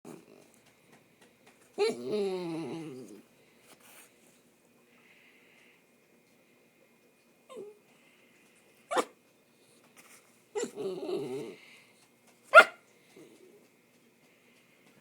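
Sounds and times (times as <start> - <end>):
dog wavering vocal sound: 1.8 - 3.2, 10.6 - 11.6.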